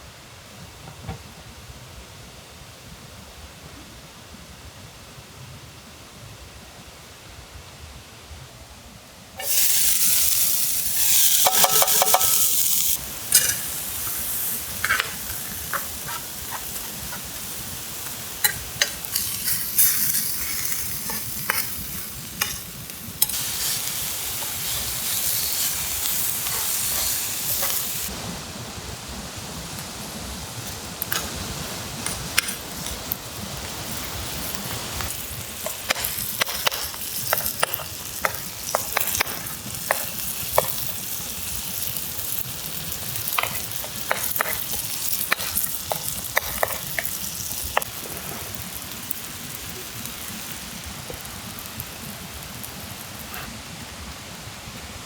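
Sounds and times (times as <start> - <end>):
utensil stirring against pan: 9.4 - 28.1, 32.0 - 49.2
food sizzling in a pan: 9.4 - 28.5, 29.1 - 53.6.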